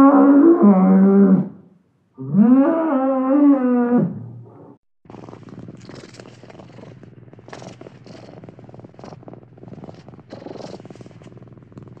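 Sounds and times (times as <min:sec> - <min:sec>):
cat purring: 0:05.1 - 0:12.0.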